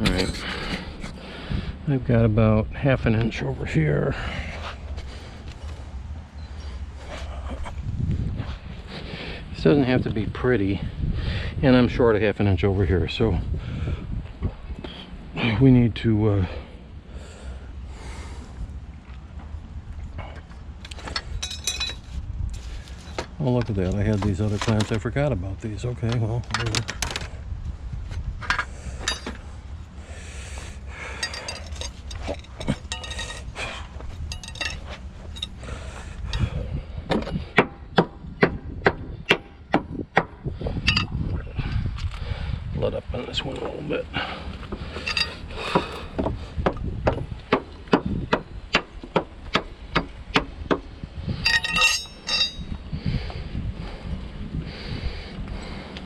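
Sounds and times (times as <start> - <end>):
steady low rumble: 0.0 - 56.0
metal clamps clinking: 21.1 - 22.1, 28.5 - 29.4, 31.0 - 33.6, 34.2 - 35.7, 40.9 - 41.2, 44.9 - 46.1, 51.4 - 52.8
metal scraping: 31.0 - 35.6, 44.9 - 46.1, 51.4 - 52.8.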